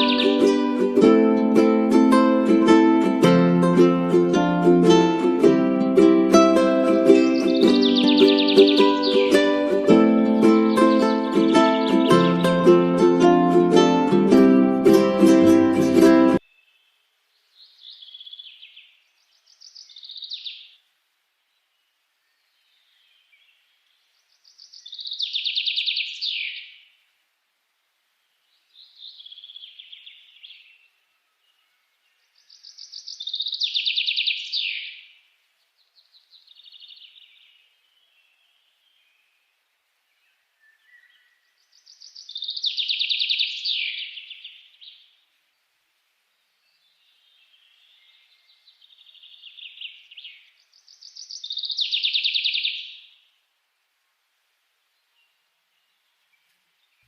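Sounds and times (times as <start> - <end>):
soft bird phrase: 0.0 - 0.5
bird trilling song: 0.0 - 0.9, 5.9 - 13.2, 17.5 - 20.8, 22.3 - 26.9, 28.6 - 35.2, 35.9 - 39.4, 40.2 - 45.2, 46.7 - 53.3.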